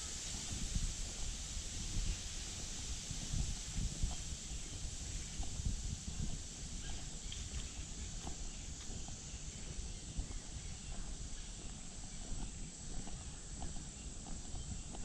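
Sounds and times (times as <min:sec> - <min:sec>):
footsteps on a path: 0:00.0 - 0:15.0
low microphone rumble: 0:00.0 - 0:15.0.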